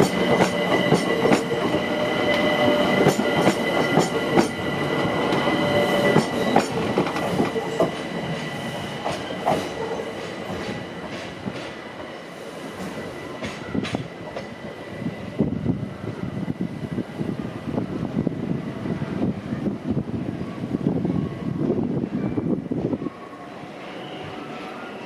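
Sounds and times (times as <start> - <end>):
train wheels clicking over rail joints: 5.2 - 11.8, 12.8 - 14.6.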